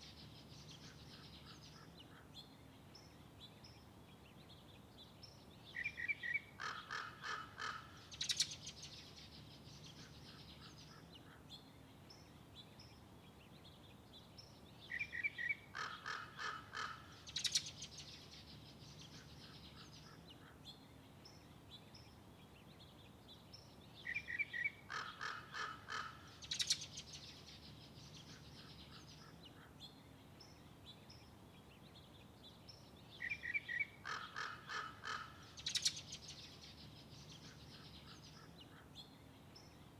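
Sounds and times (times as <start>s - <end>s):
bird calling: 5.8s - 8.6s, 24.1s - 26.9s, 33.2s - 36.2s.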